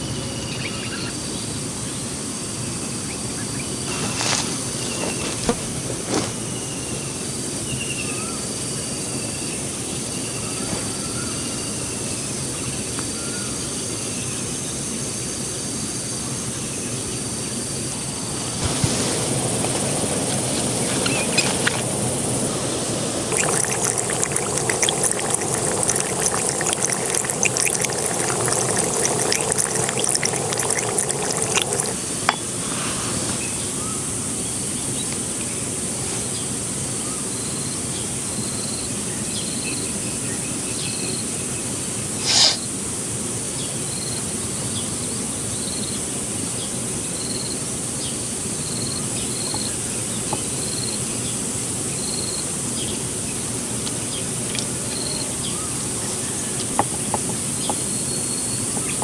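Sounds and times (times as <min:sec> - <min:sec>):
rushing water: 0:17.9 - 0:33.3.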